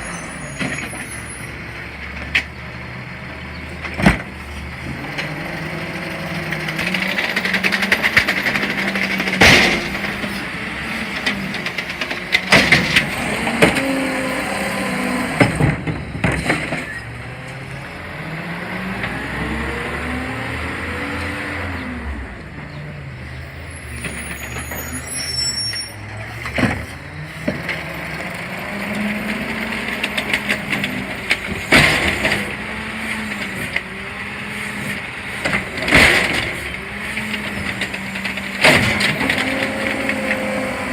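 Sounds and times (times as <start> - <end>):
garbage truck engine revving: 0.0 - 40.9
sharp bangs and clanks: 6.4 - 13.9, 29.8 - 33.9, 34.9 - 40.6.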